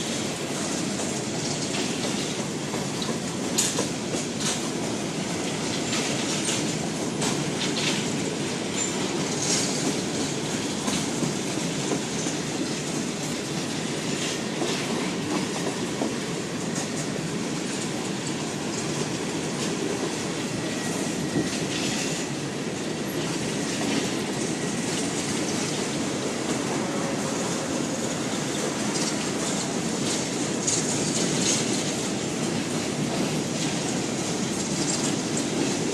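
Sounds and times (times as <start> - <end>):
train wheels rumbling on rail: 0.0 - 35.9
wheels clicking over rail joints: 0.6 - 17.2, 28.8 - 35.9.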